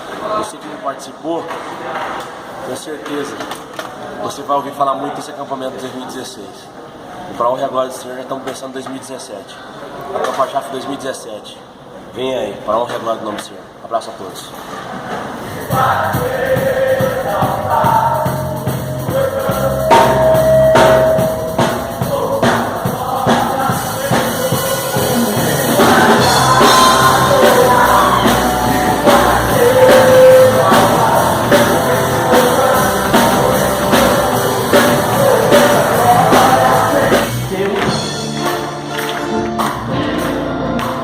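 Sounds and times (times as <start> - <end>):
drum kit and band: 15.0 - 41.0
person singing lead vocal: 15.6 - 38.9.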